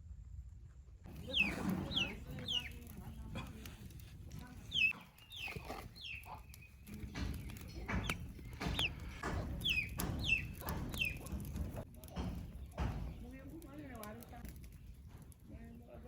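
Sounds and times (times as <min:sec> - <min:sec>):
chickens calling: 0:01.1 - 0:13.3.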